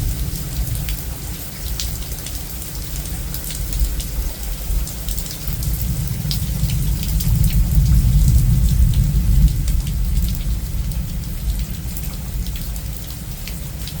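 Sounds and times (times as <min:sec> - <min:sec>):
deep thunder rumble: 0:00.0 - 0:14.0
heavy rain: 0:00.0 - 0:14.0.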